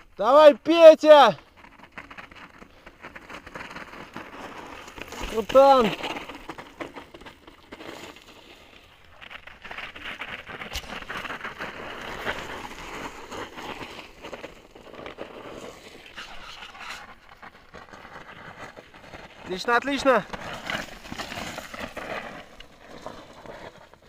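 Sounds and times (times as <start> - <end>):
bike tyres crunching on stones: 0.1 - 24.0.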